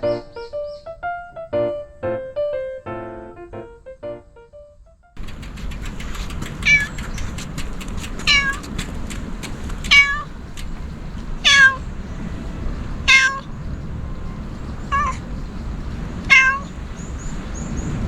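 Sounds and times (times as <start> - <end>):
low background rumble: 5.2 - 18.0
cat meowing: 6.4 - 17.8.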